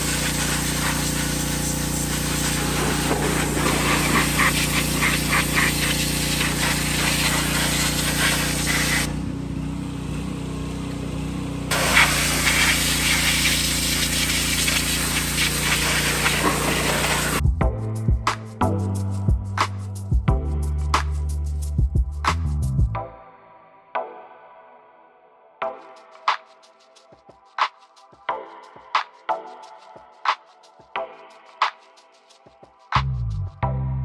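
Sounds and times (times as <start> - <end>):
pressure washer motor humming: 0.0 - 17.4
pressure washer water spraying: 0.0 - 17.4.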